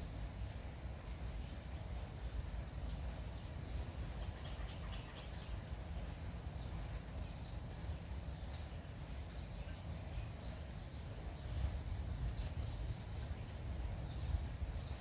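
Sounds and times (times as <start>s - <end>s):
light rain: 0.0s - 15.0s
small birds chirping: 0.1s - 15.0s.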